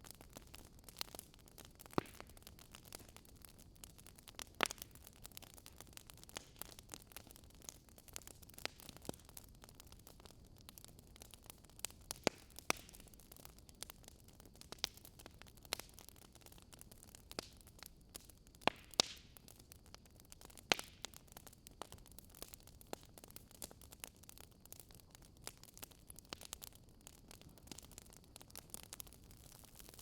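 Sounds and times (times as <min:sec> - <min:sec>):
burning wood popping and snapping: 0:00.0 - 0:30.0
faint steady hiss: 0:00.0 - 0:30.0.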